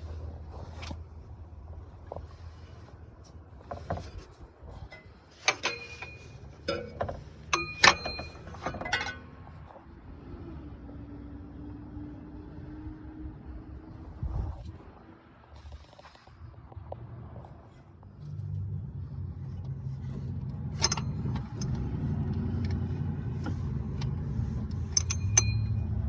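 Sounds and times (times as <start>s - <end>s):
metal tools clinking: 4.9s - 9.4s, 20.7s - 22.0s, 22.7s - 26.0s.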